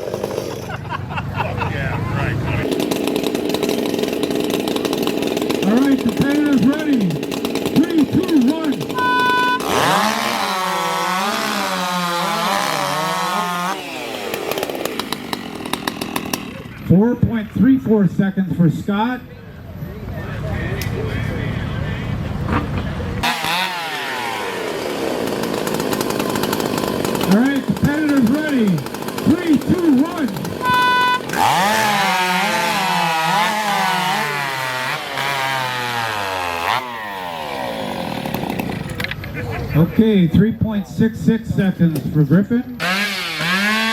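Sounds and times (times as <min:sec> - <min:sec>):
chainsaw cutting log: 0:00.0 - 0:01.0, 0:02.6 - 0:17.4, 0:23.2 - 0:39.4, 0:42.7 - 0:43.9.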